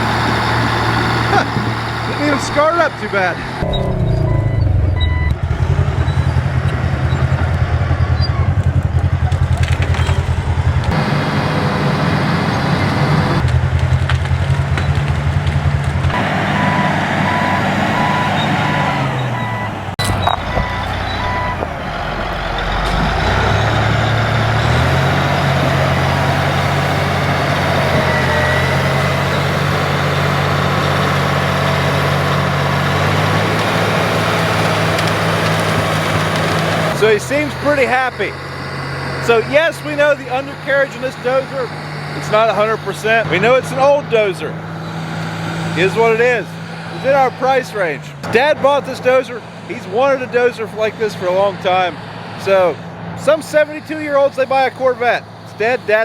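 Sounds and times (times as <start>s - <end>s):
bulldozer diesel engine running: 0.0s - 56.0s
backup alarm beeping: 3.6s - 6.4s, 16.5s - 25.0s.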